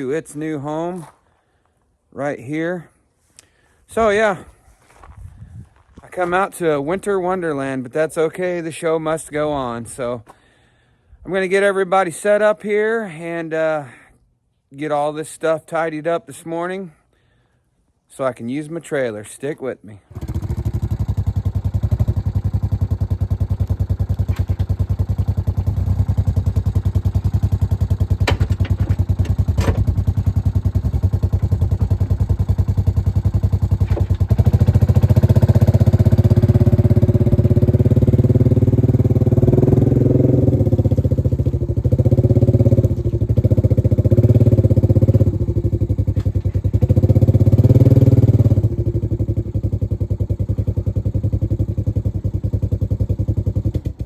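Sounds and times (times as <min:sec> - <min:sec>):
engine running and revving: 0:20.2 - 0:54.0
sharp knocks: 0:28.1 - 0:30.1.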